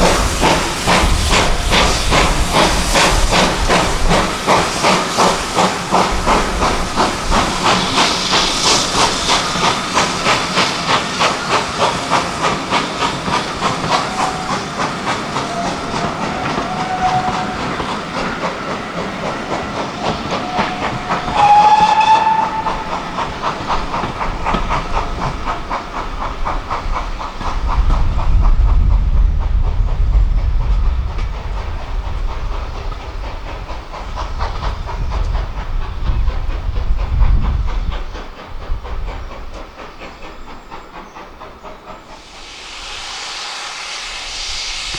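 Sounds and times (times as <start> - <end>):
hissing steam: 0.0 - 44.9
steam locomotive exhaust beats: 0.0 - 44.9
locomotive whistle blast: 15.4 - 17.8, 20.1 - 23.2.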